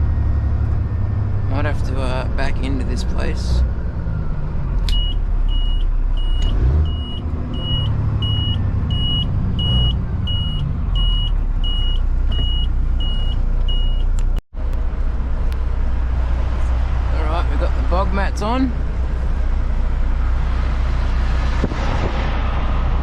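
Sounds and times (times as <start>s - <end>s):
diesel engine running: 0.0s - 23.0s
truck reversing alarm beeping: 4.9s - 14.1s.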